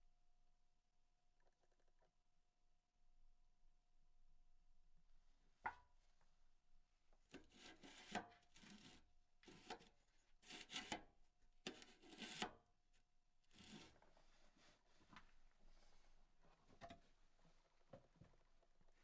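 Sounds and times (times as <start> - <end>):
faint scraping strokes: 13.6 - 16.2.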